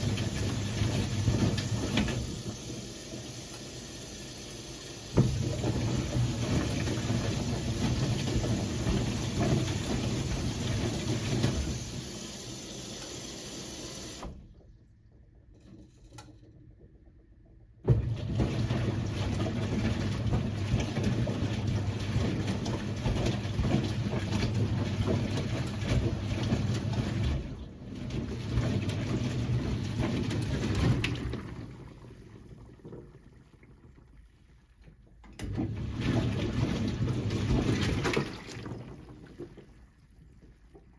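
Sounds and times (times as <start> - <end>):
washing machine drum turning: 0.0 - 4.0, 4.8 - 14.6, 17.8 - 32.0, 35.3 - 39.4
washing machine knock: 5.1 - 12.2, 17.8 - 31.6
water sloshing: 35.8 - 40.9.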